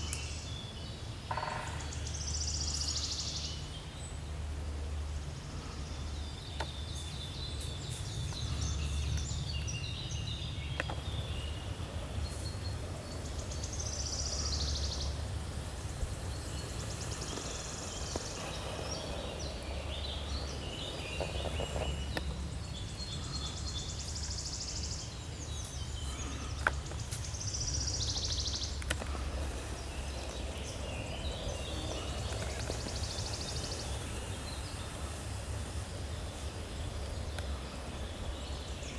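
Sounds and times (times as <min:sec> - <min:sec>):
small birds chirping and trilling: 0:04.9 - 0:38.9.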